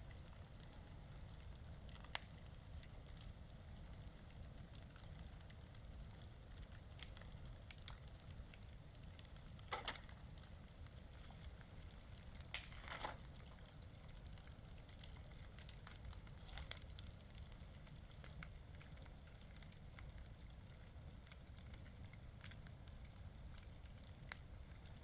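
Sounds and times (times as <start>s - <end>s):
bonfire crackling: 0.0s - 25.0s
sharp pops from fire: 12.4s - 14.0s.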